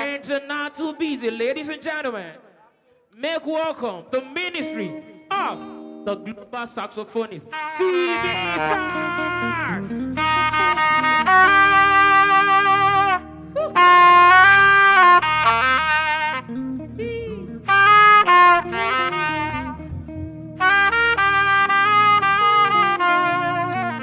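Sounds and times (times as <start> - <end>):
saxophone playing slow melody: 7.5 - 24.0
steady low backing: 8.2 - 24.0.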